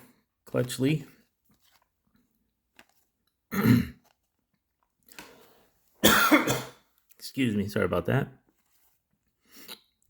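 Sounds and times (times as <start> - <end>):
man clearing his throat: 3.5 - 4.0, 6.0 - 6.8.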